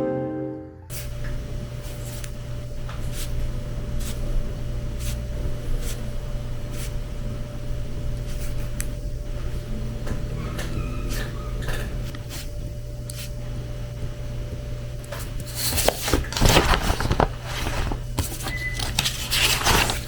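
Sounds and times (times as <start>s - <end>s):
guitar music: 0.0s - 0.9s
low room hum: 0.0s - 20.0s.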